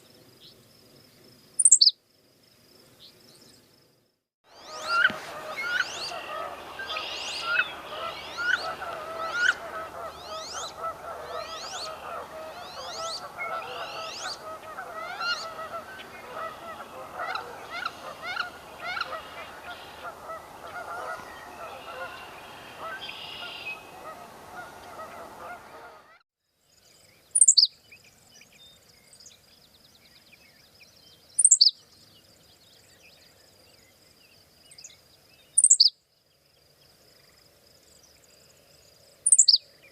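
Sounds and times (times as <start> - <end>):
dense chorus of birds: 4.5 - 39.9.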